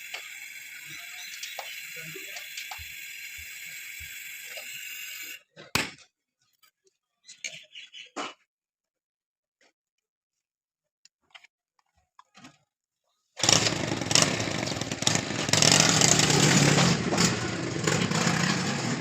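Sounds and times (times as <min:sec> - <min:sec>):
machine running loudly: 0:00.0 - 0:05.3, 0:13.4 - 0:19.0.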